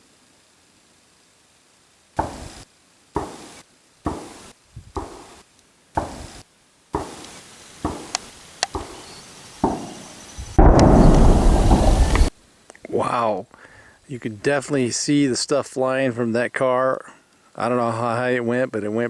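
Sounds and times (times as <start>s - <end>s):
rifle shots cracking: 9.6s - 12.3s
loud explosion with rumble: 10.4s - 12.3s.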